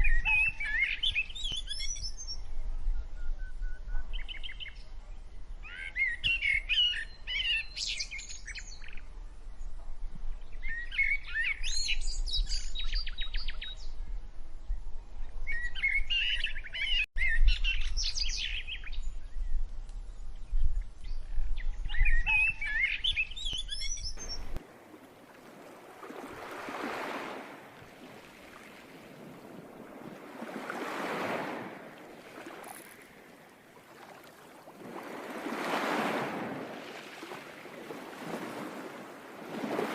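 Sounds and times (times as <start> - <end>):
birds chirping and trilling: 0.0 - 2.5, 15.4 - 24.6
surf waves washing in: 24.2 - 39.9.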